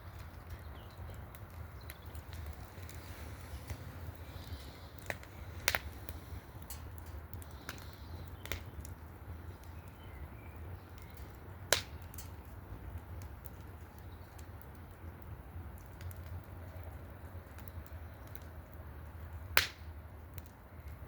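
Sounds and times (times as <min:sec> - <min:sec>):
wood fire crackling: 0:00.0 - 0:21.0
sharp pops: 0:05.0 - 0:08.7, 0:11.7 - 0:12.3, 0:19.6 - 0:19.9.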